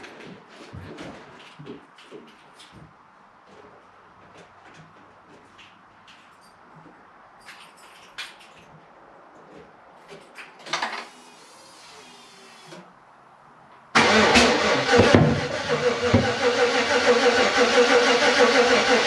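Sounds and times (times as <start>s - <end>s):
engine starter and engine running: 14.0s - 19.0s.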